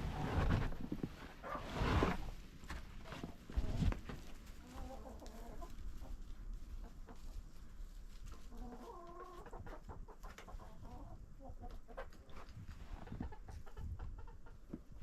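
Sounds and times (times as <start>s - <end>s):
chickens clucking: 3.0s - 7.6s, 8.2s - 15.0s.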